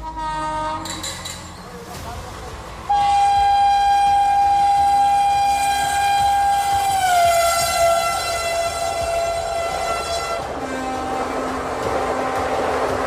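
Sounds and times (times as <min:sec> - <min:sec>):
locomotive horn blast: 0:00.0 - 0:01.2, 0:02.8 - 0:13.0
train rumble: 0:00.0 - 0:13.0.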